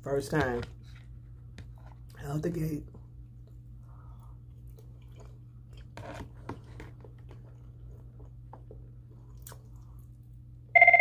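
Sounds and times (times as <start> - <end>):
steady low hum: 0.0 - 11.0
person chewing: 3.2 - 10.4
small mouth clicks: 9.4 - 9.8.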